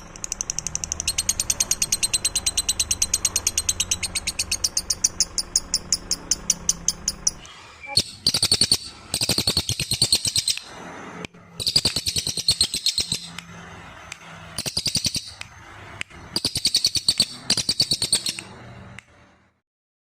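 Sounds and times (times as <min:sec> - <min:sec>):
songbird trilling: 0:00.3 - 0:10.7, 0:11.6 - 0:13.4, 0:14.6 - 0:15.4, 0:16.3 - 0:18.5.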